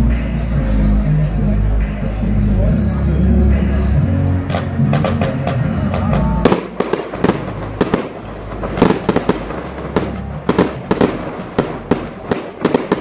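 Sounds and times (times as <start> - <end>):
music with heavy bass: 0.0 - 13.0
fireworks banging: 4.5 - 13.0.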